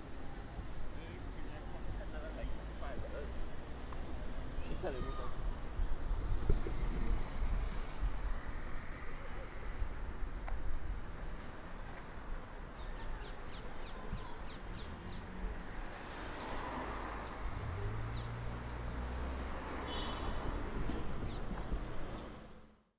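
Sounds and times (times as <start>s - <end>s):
car engine passing: 14.7s - 21.2s.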